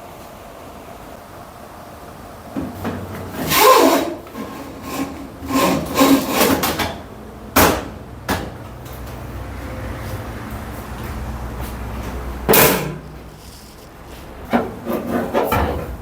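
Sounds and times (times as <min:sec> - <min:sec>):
panels scraping and rubbing: 0:12.5 - 0:16.0.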